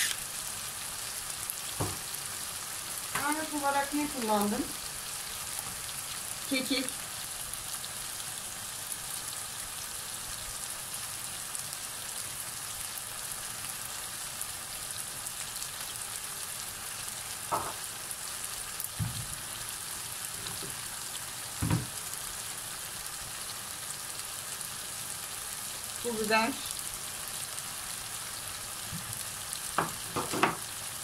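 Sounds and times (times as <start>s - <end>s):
food sizzling in a frying pan: 0.0s - 31.0s.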